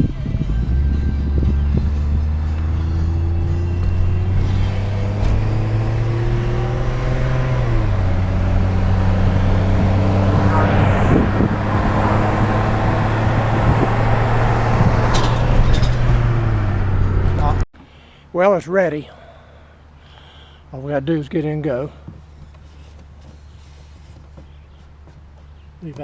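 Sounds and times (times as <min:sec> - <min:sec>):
vehicle engine driving: 0:00.0 - 0:17.7
road noise: 0:00.0 - 0:26.0.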